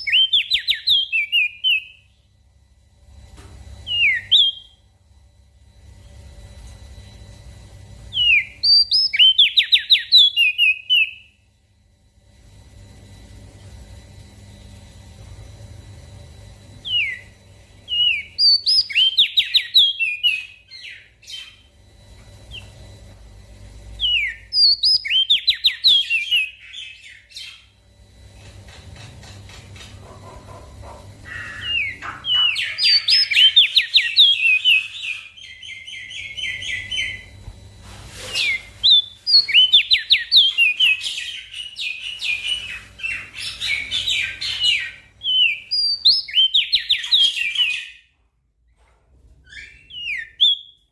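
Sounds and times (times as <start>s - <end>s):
bird chirps and trills: 0.0s - 2.3s, 3.8s - 4.8s, 8.1s - 11.4s, 16.8s - 22.8s, 24.0s - 27.8s, 29.0s - 37.4s, 38.2s - 48.1s
faint steady hum: 0.0s - 50.9s.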